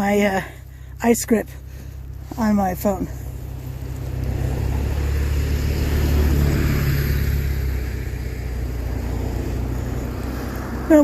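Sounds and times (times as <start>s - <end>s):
steady low rumble: 0.0s - 11.0s
car passing by: 1.4s - 11.0s.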